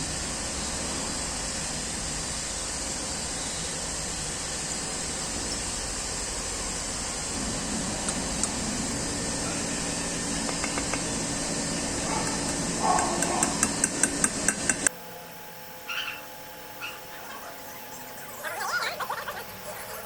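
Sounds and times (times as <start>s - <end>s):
steady workshop hum: 0.0s - 20.0s.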